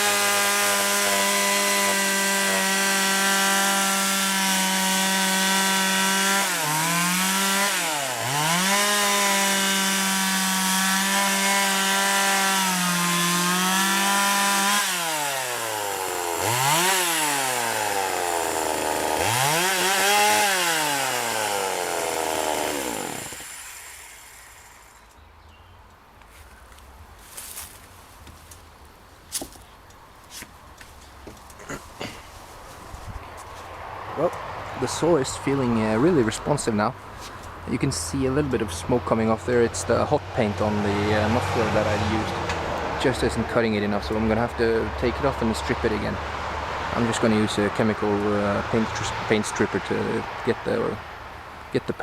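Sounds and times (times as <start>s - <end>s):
chainsaw engine revving: 0.0s - 25.0s, 40.4s - 42.6s.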